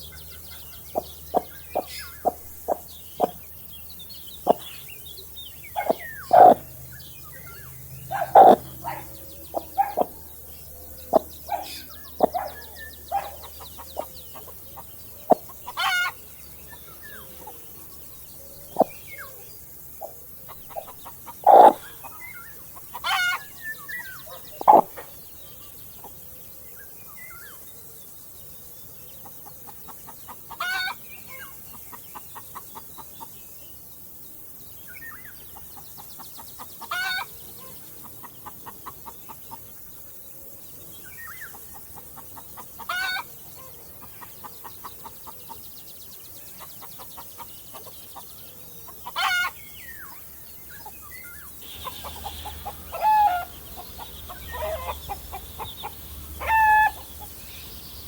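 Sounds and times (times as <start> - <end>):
chickens clucking: 0.0 - 3.5, 4.3 - 4.9, 5.7 - 6.8, 8.0 - 17.8, 18.6 - 19.1, 20.0 - 25.2, 29.6 - 31.0, 35.5 - 39.7, 41.5 - 45.6, 46.6 - 48.3, 48.9 - 49.6, 51.6 - 58.0
sharp chicken calls: 0.3 - 3.4, 4.4 - 4.8, 5.7 - 6.8, 8.1 - 16.3, 18.5 - 19.4, 20.0 - 25.2, 29.6 - 31.4, 36.4 - 39.6, 41.5 - 45.6, 48.9 - 49.6, 51.6 - 58.0.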